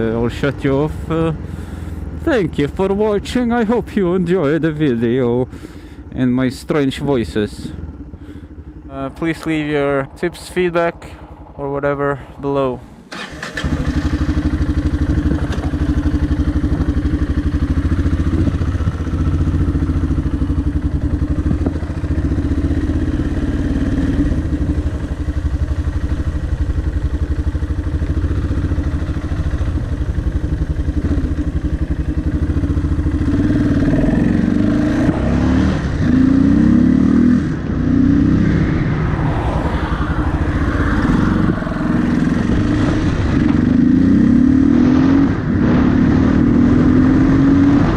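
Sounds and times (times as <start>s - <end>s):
motorcycle engine running: 7.0s - 47.9s.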